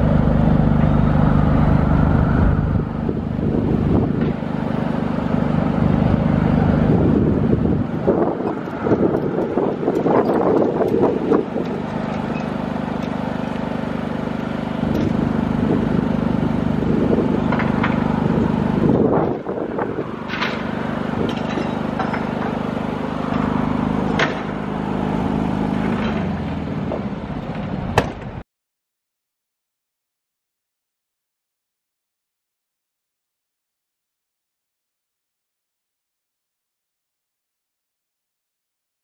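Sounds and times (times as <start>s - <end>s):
generator engine humming: 0.0s - 28.4s.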